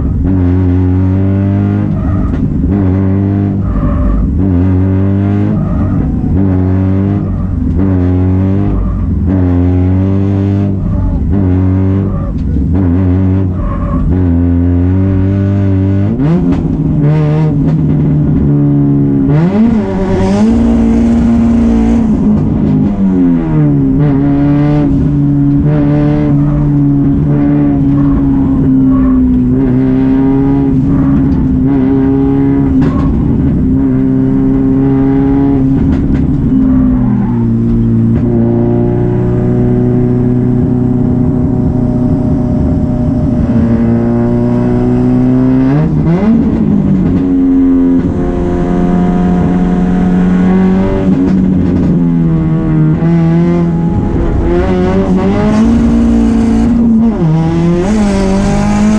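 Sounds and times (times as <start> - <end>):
car engine at high revs: 0.0 - 58.9.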